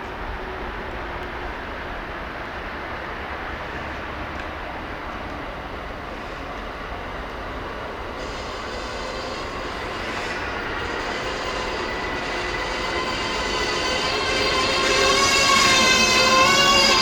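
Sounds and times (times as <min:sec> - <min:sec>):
electric train passing: 0:00.0 - 0:17.0
high multi-tone whine: 0:08.2 - 0:17.0.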